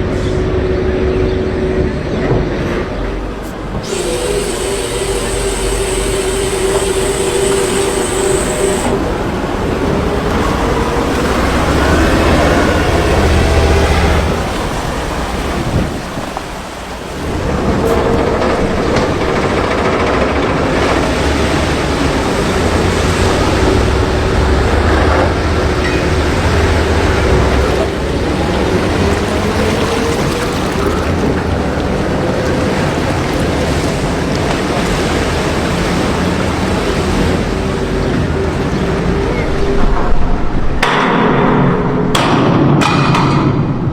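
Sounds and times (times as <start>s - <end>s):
engine running: 0.0s - 42.3s
heavy rushing noise: 0.0s - 43.9s.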